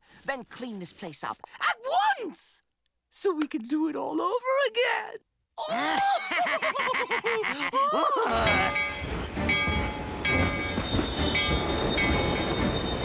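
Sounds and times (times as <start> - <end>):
cartoon train clatter: 8.4 - 13.0
train whistle tones: 8.4 - 13.0.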